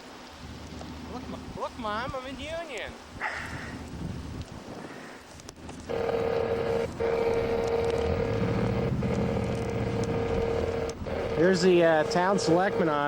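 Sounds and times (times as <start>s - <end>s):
low hum: 5.8s - 13.0s
steady single-pitched tone: 5.9s - 13.0s.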